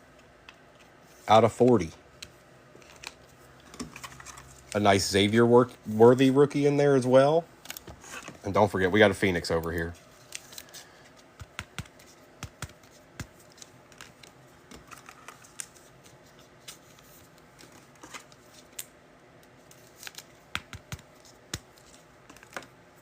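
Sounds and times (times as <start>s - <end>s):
cards clicking and tapping on table: 11.4s - 13.4s, 20.5s - 21.7s.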